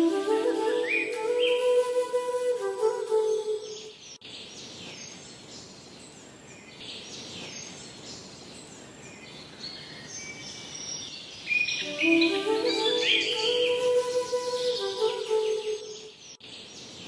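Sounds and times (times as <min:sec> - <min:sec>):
music: 0:00.0 - 0:03.7, 0:11.8 - 0:16.0
steady background hiss: 0:00.0 - 0:17.0
small birds chirping: 0:03.7 - 0:17.0.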